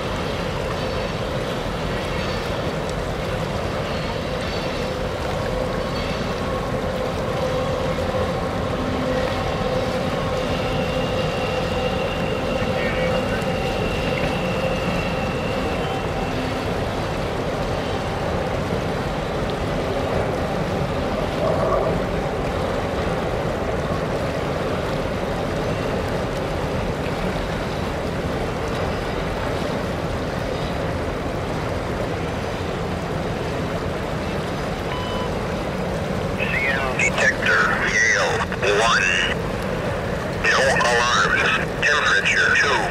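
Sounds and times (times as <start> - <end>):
faint steady tone: 34.8 - 42.9.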